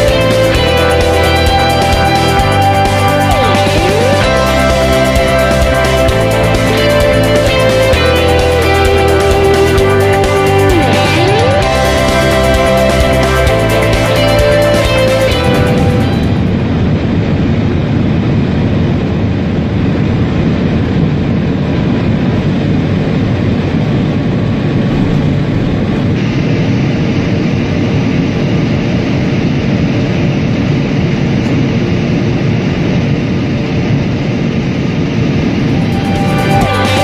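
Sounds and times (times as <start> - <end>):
train rumbling at speed: 0.0 - 37.0.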